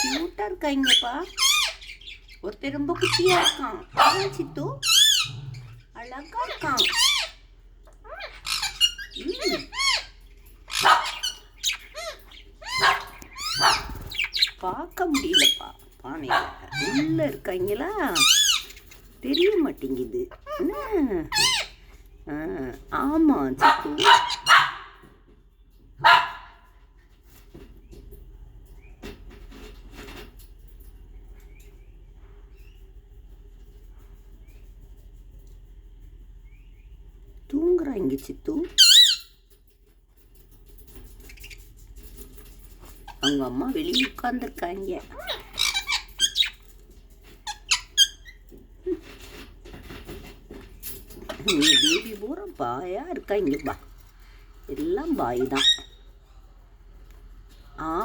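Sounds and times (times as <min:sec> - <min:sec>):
budgerigars chirping: 0:00.0 - 0:21.9, 0:22.5 - 0:24.8, 0:38.7 - 0:39.4, 0:41.2 - 0:41.6, 0:43.0 - 0:46.8, 0:51.2 - 0:53.8, 0:54.7 - 0:56.1
light scratching and tapping: 0:00.0 - 0:23.4, 0:24.0 - 0:37.5, 0:39.4 - 0:58.0.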